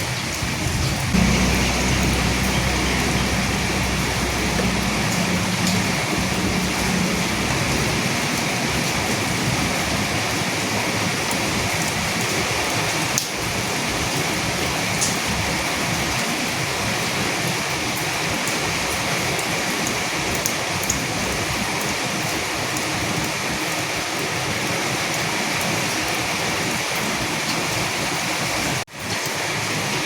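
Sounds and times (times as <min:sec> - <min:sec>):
heavy rain falling: 0:00.0 - 0:30.0
low thunder rumble: 0:00.5 - 0:11.6.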